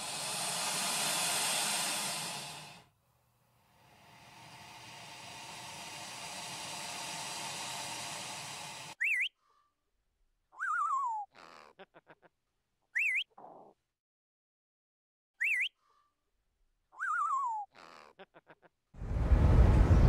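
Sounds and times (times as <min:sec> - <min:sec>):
rushing hiss: 0:00.0 - 0:02.9, 0:03.8 - 0:09.0.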